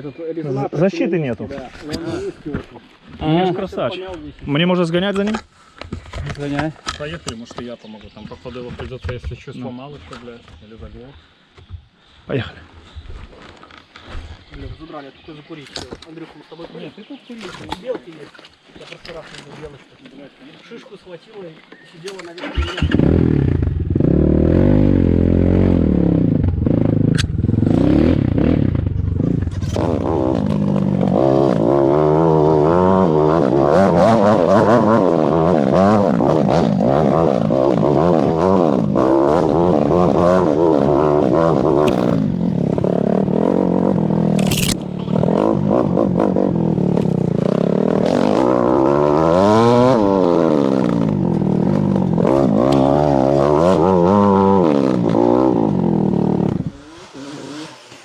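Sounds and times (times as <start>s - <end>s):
dirt bike engine revving: 22.4s - 58.0s.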